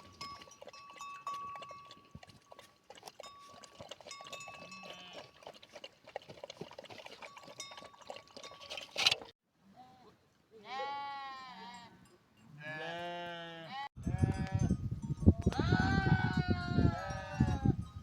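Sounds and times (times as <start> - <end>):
hooves clicking and knocking: 0.0 - 9.3
sheep bleating: 10.6 - 11.9, 12.6 - 14.6.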